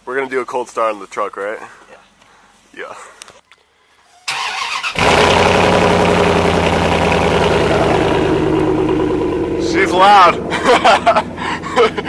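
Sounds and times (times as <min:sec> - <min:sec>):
truck starter cranking: 0:04.3 - 0:12.0
truck engine idling: 0:05.0 - 0:12.0.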